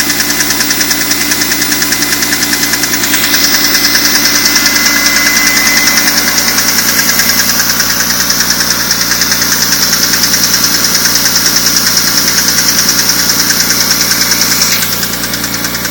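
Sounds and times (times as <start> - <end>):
car engine idling: 0.0 - 15.9
rapid even ticking: 0.0 - 15.9.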